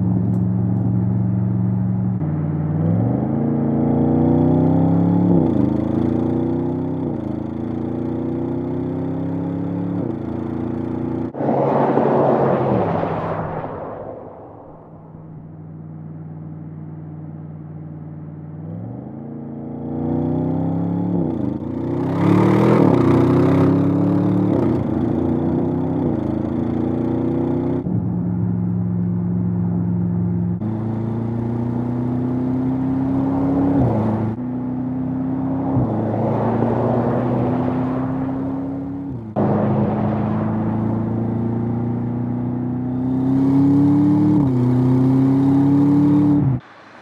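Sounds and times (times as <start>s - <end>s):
car engine accelerating through gears: 18.6s - 47.0s.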